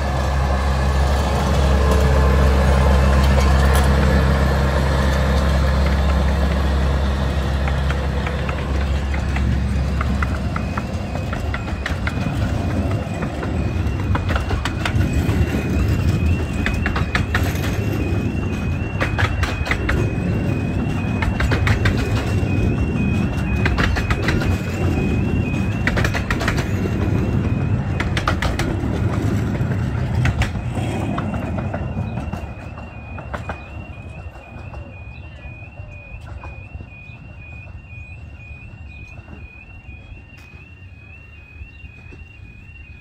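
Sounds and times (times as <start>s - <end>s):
level crossing alarm: 0.0s - 43.0s
train carriages rumbling past: 0.0s - 43.0s
wheels clicking over rail joints: 0.0s - 43.0s.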